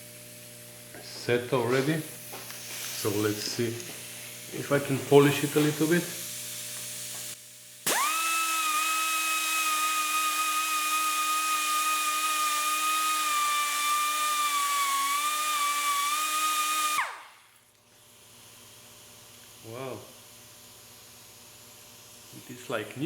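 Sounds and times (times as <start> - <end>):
power tool motor whining: 5.2 - 17.4.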